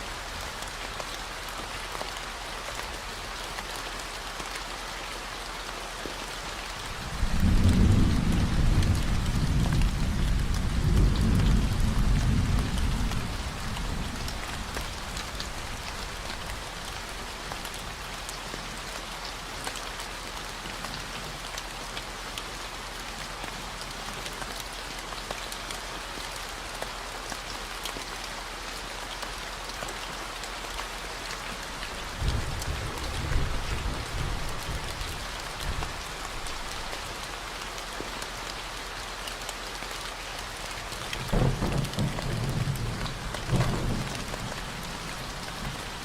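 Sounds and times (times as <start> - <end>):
steady rain falling: 0.0 - 46.0
thunder rumble: 7.0 - 16.5.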